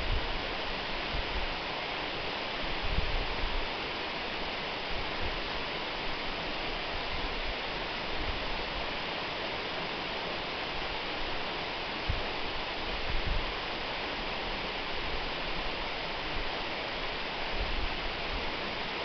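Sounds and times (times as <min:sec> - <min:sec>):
waterfall rushing: 0:00.0 - 0:19.0
wind thumps on microphone: 0:13.0 - 0:13.5.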